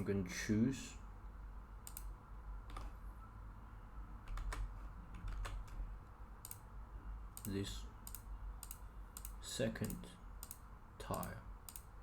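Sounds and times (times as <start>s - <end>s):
faint low hum: 0.0s - 12.0s
keyboard and mouse clicks: 1.8s - 2.1s, 2.7s - 2.9s, 4.3s - 5.8s, 6.4s - 6.7s, 7.4s - 11.9s.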